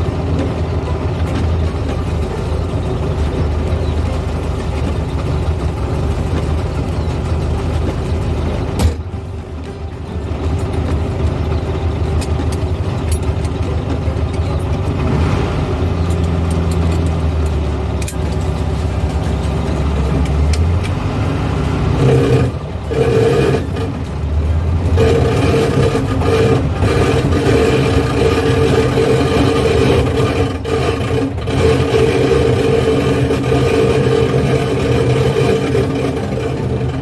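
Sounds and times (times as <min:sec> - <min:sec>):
car engine running: 0:00.0 - 0:37.0.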